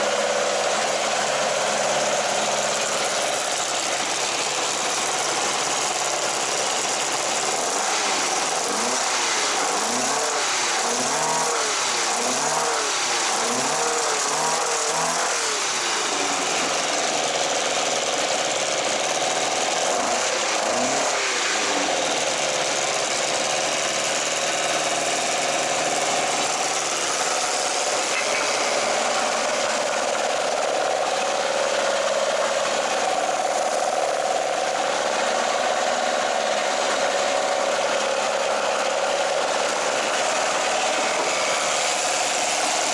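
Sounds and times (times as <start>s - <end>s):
car engine revving: 6.8s - 17.1s, 19.8s - 22.9s, 25.3s - 42.9s.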